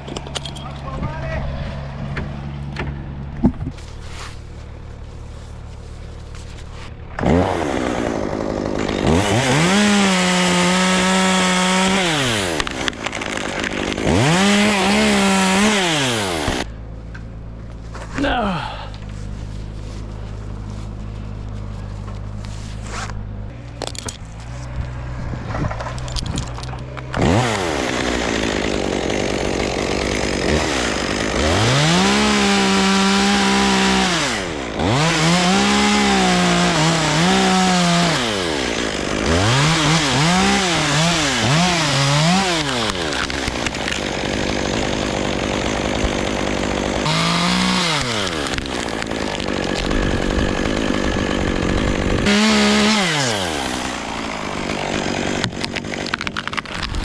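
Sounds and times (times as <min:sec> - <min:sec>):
chainsaw idling and revving: 0:06.3 - 0:16.9, 0:26.2 - 0:57.0.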